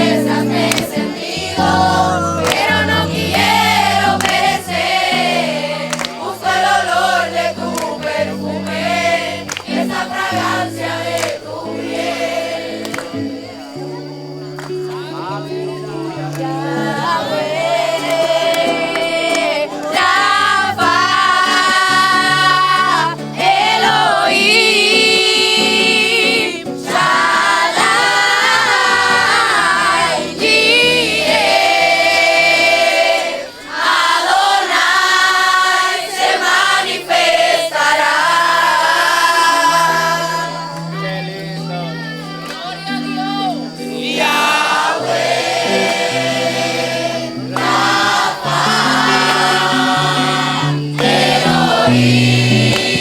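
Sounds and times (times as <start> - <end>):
instrumental backing: 0.0 - 13.5, 40.0 - 53.0
group singing worship song: 0.0 - 53.0.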